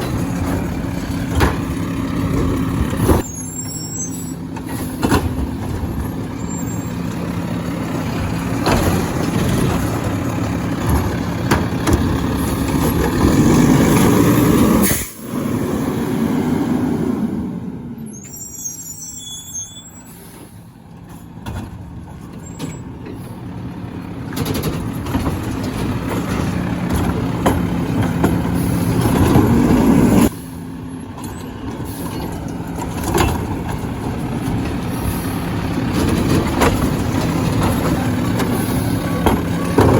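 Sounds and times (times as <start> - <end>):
garbage truck engine: 0.0 - 39.9
faint squeaks: 18.1 - 20.3.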